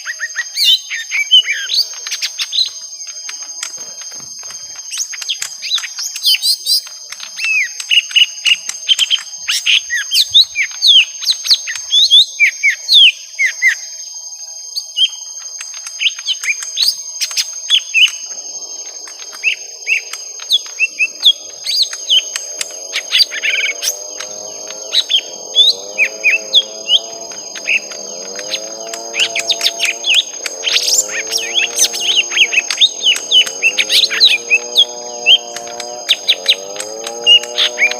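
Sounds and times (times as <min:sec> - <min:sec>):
birds chirping and whistling: 0:00.0 - 0:37.9
steady high whine: 0:00.0 - 0:37.9
low wavering layered sound: 0:14.1 - 0:37.9.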